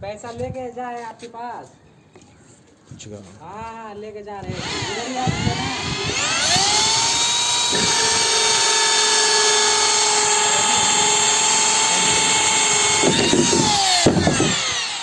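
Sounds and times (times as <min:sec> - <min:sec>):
electric drill cutting plastic: 0:04.4 - 0:15.0.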